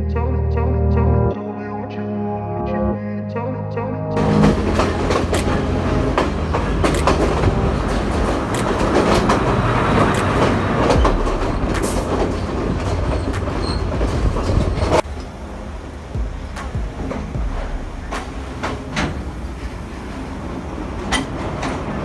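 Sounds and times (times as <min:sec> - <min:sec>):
train wheels clicking over rails: 0:04.2 - 0:15.2, 0:16.1 - 0:22.0
diesel engine rumbling: 0:04.2 - 0:22.0.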